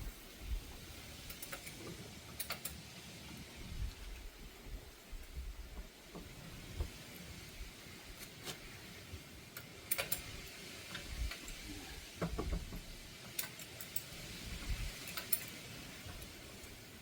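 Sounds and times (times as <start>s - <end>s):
dull knocks of car parts: 12.2s - 12.9s.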